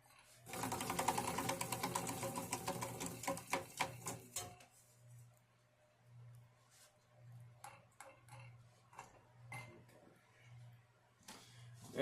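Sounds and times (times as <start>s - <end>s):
ceiling fan rattling tick: 0.6s - 4.6s
faint low hum: 4.4s - 12.0s.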